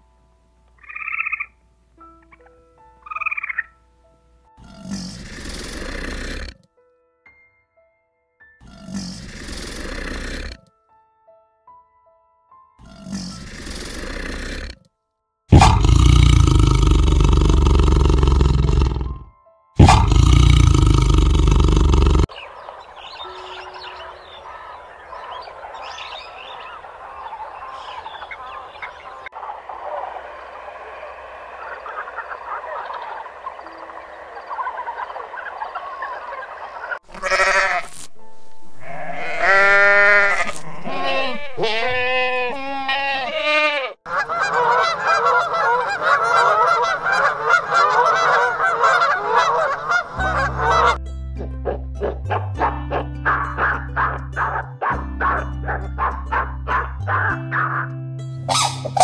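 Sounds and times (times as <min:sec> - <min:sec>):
geese honking: 0:22.5 - 0:38.0, 0:38.8 - 0:51.0, 0:52.0 - 0:57.9, 0:58.5 - 0:59.0
goats bleating: 0:37.1 - 0:38.1, 0:38.8 - 0:44.0.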